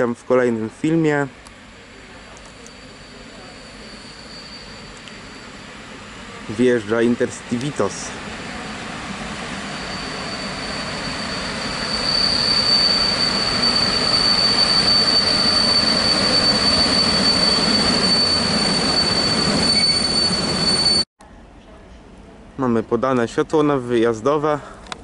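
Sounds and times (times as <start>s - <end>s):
train rumbling past slowly: 0.0s - 22.6s
high-pitched brake squeal: 2.3s - 6.0s, 9.1s - 21.1s.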